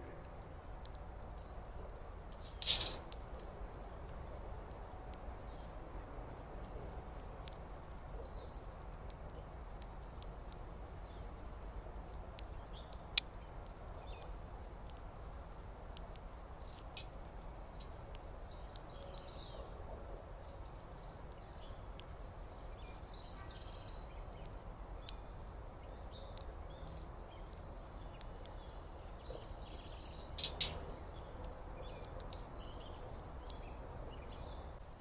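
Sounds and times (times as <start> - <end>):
steady low hiss: 0.0 - 35.0
faint bird chirps: 20.4 - 34.7
sharp click: 30.2 - 30.9.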